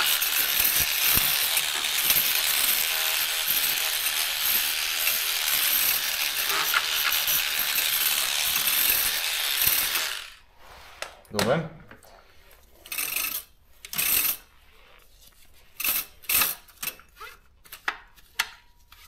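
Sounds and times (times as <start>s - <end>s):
electric brush scrubbing: 0.0s - 10.4s.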